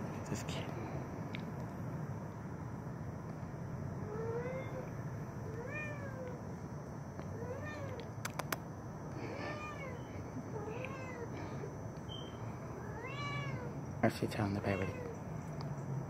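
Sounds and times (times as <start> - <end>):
cat meowing: 4.0 - 4.9, 5.5 - 6.4, 7.3 - 8.0, 9.3 - 11.3, 12.8 - 13.8, 14.6 - 15.2
sharp clicks: 8.0 - 8.7.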